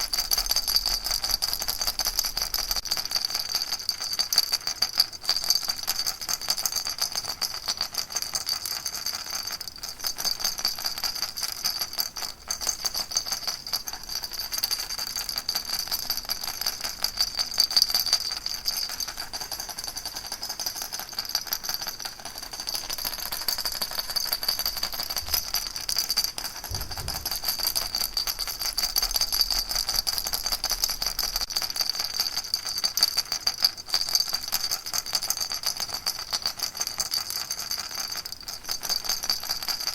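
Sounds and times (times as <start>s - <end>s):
baby rattle shaken: 9.4s - 33.5s.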